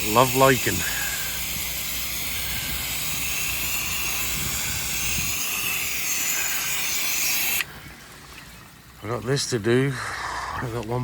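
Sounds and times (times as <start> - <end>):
hose nozzle spraying hiss: 0.0 - 7.7.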